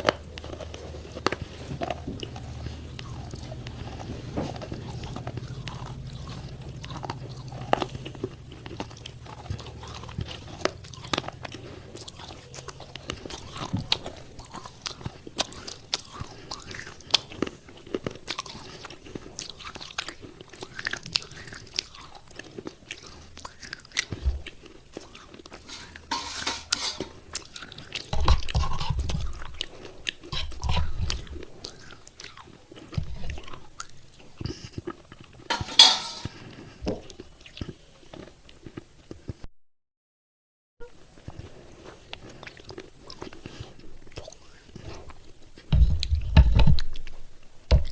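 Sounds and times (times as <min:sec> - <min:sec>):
clay pieces crunching in mouth: 0:00.0 - 0:39.4, 0:41.2 - 0:47.9
deep thuds: 0:45.7 - 0:46.8.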